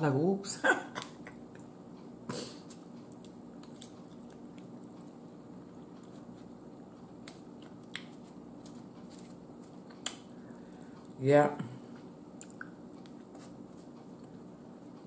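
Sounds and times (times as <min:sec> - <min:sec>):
person chewing: 0:02.5 - 0:11.2, 0:11.9 - 0:14.5
sharp mouth clicks: 0:12.4 - 0:13.1.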